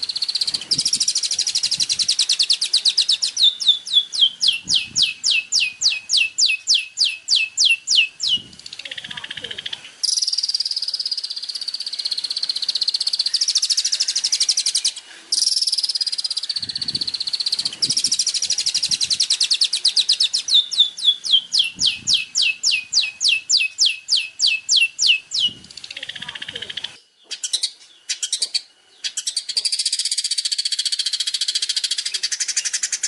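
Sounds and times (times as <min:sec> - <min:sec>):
songbird trilling: 0:00.0 - 0:33.0
falling whistled bird notes: 0:10.0 - 0:25.9.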